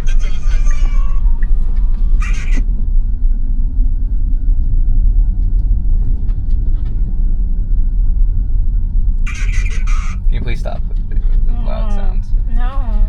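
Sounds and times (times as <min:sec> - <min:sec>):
road and tyre rumble in car: 0:00.0 - 0:13.0.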